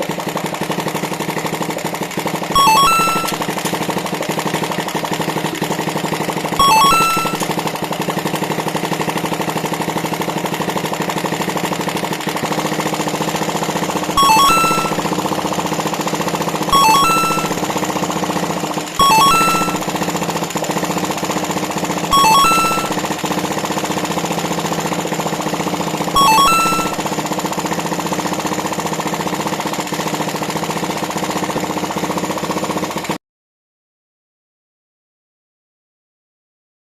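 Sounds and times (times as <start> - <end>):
engine running with rapid beat: 0.0 - 33.2
jingle of electronic tones: 2.6 - 3.6, 6.6 - 7.6, 14.2 - 15.3, 16.7 - 17.7, 19.0 - 20.0, 22.1 - 23.2, 26.2 - 27.1.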